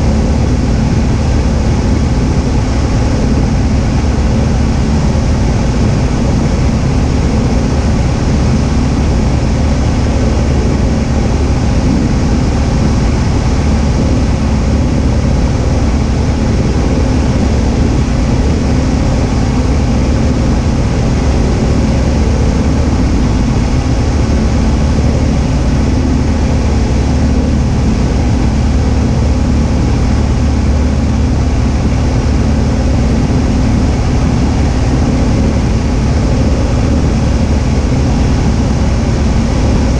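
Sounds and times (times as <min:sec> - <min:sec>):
airflow noise over airframe: 0:00.0 - 0:39.9
airplane engine and propeller droning: 0:00.0 - 0:39.9.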